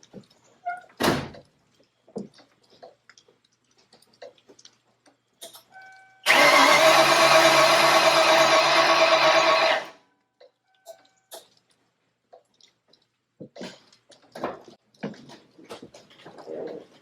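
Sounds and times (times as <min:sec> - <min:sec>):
engine starting: 0:06.2 - 0:09.9
engine cranking on starter motor: 0:06.2 - 0:10.0.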